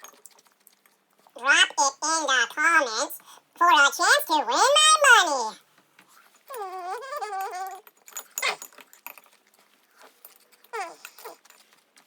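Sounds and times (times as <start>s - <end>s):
crunching of chewing: 0.0s - 1.4s, 6.2s - 12.0s
sped-up high-pitched voice: 1.4s - 5.6s.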